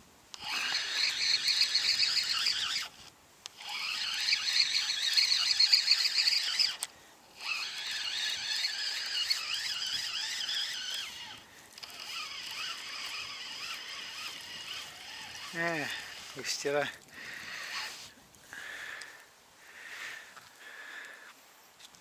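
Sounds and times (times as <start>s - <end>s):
fishing reel whirring: 0.4s - 18.2s.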